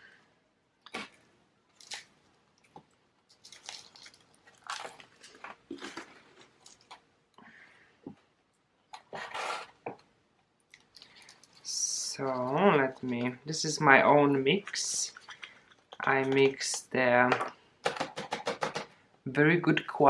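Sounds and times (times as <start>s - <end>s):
potting mix crunching and rustling: 2.7s - 7.0s.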